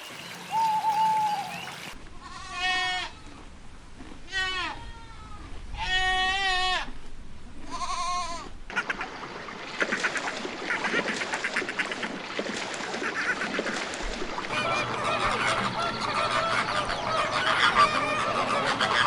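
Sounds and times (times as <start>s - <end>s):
goat bleating: 2.2s - 3.4s, 4.3s - 6.9s, 7.7s - 8.5s
poultry clucking: 14.5s - 19.0s.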